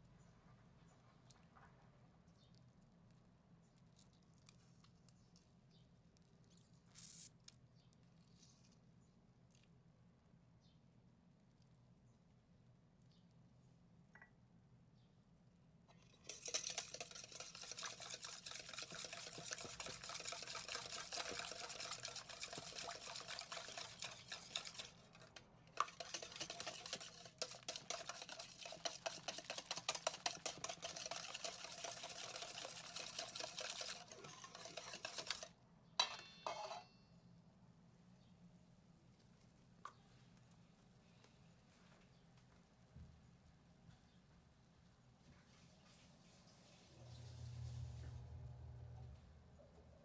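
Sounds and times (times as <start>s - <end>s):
whisk clicking against bowl: 16.0s - 35.5s
utensil clattering on bowl: 16.0s - 36.8s.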